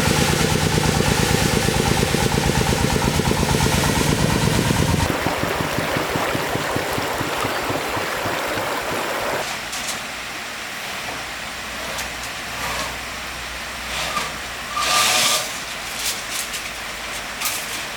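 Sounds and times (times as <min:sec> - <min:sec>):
steady rushing noise: 0:00.0 - 0:09.4
vehicle engine running: 0:00.0 - 0:09.4.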